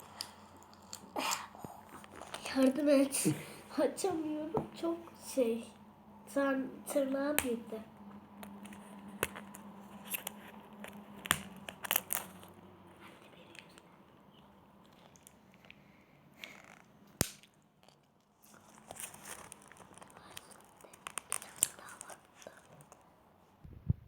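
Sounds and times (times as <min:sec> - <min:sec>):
packaging clicks and crackles: 0:08.4 - 0:12.6, 0:16.4 - 0:23.0.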